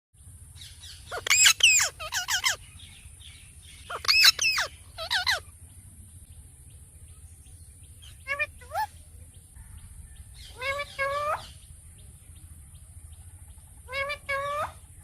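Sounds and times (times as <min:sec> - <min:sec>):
parrot squawking: 0:00.8 - 0:02.6, 0:03.8 - 0:05.5, 0:08.0 - 0:08.9, 0:10.4 - 0:11.6, 0:13.8 - 0:14.8.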